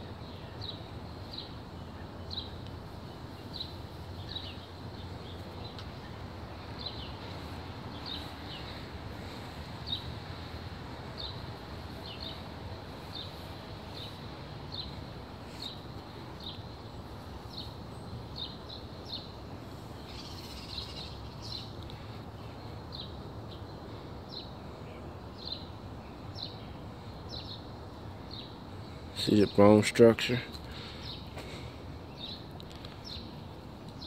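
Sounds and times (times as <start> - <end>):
outdoor background noise: 0.0 - 34.0
small bird chirping: 0.2 - 24.6.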